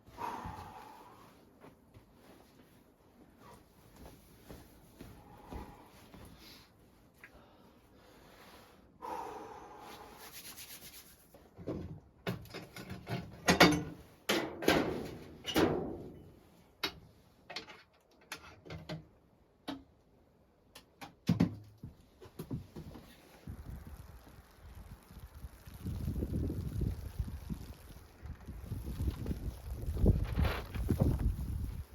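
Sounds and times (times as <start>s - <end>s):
rubbing and scraping strokes: 9.9s - 11.5s, 28.6s - 31.9s.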